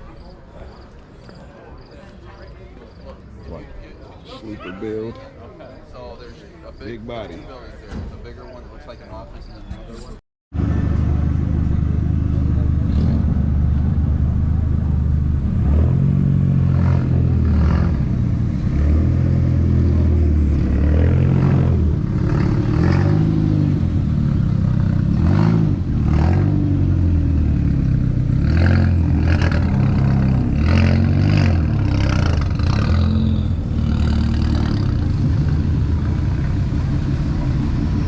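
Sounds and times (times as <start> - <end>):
car engine revving: 10.6 - 38.0.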